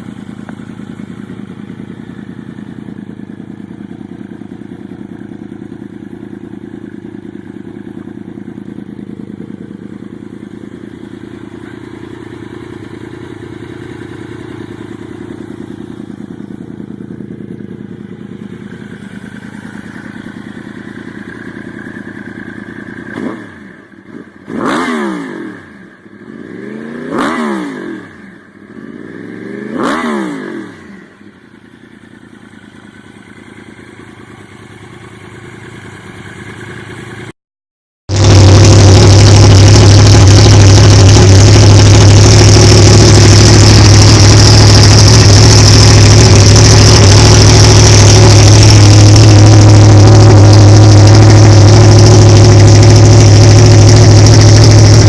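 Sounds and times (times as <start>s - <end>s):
motorcycle engine idling and revving: 0.0s - 37.4s, 38.1s - 55.0s
loud engine deep drone: 38.1s - 55.0s.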